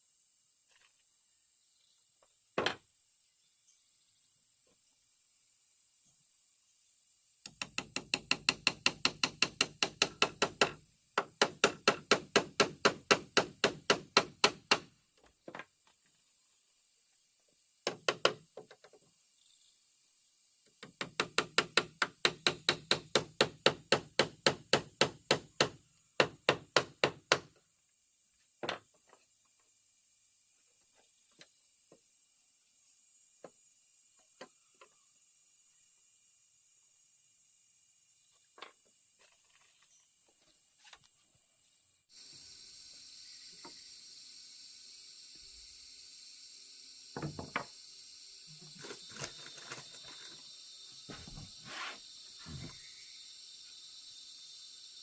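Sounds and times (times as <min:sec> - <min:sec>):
hammering on wood: 0:07.5 - 0:14.9, 0:17.8 - 0:18.4, 0:20.8 - 0:27.5.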